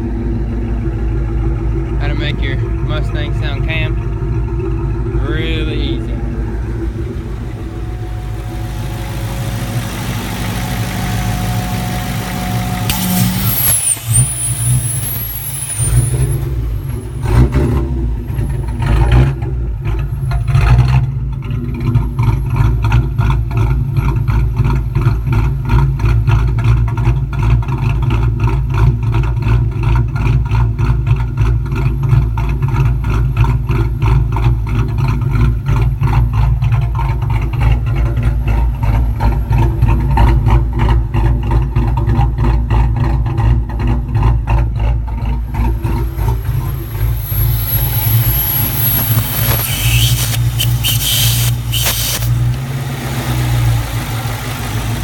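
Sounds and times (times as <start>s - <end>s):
v-eight engine lopey idle: 0.0s - 55.0s
vacuum hiss: 8.4s - 15.8s, 46.2s - 52.6s.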